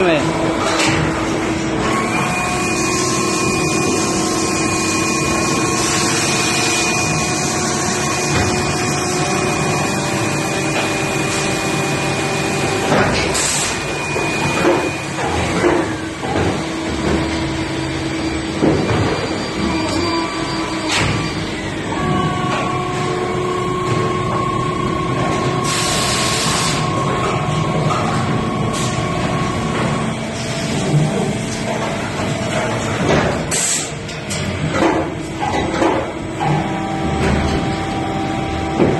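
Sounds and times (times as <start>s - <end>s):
injection moulding machine hum: 0.0s - 38.9s
sharp knocks and clanks: 14.2s - 17.4s, 30.8s - 37.9s
machine hiss: 25.6s - 26.8s.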